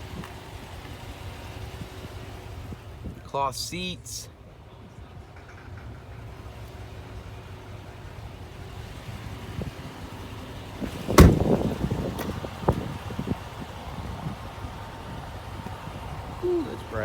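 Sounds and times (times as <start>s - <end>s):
truck door slamming: 10.8s - 13.0s.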